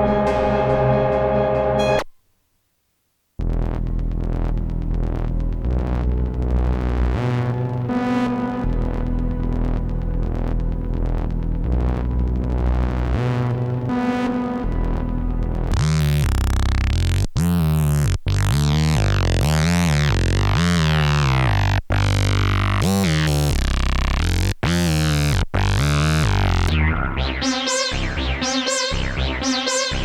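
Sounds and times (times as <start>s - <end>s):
synthesizer bass notes: 0.0s - 2.1s, 3.4s - 30.0s
synthesizer quick short notes: 0.0s - 2.1s, 26.7s - 30.0s.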